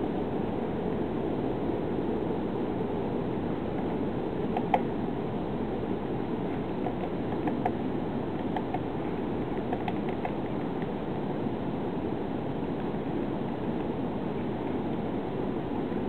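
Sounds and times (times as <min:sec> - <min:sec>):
low background noise: 0:00.0 - 0:16.0
woodpecker tapping on bark: 0:06.8 - 0:07.8, 0:09.5 - 0:10.9.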